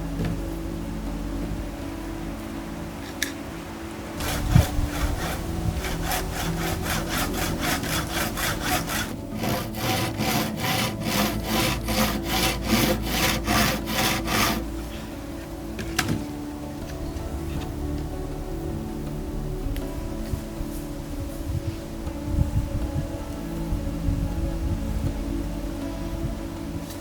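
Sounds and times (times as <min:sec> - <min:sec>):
hand saw cutting wood: 0:04.2 - 0:14.8.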